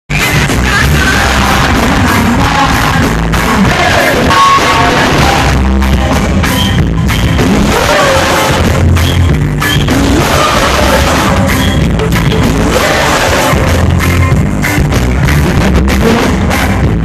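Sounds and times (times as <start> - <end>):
heavy bass line: 0.1 - 17.0
live reggae band: 0.1 - 17.0
person singing: 7.4 - 8.8, 9.9 - 14.0.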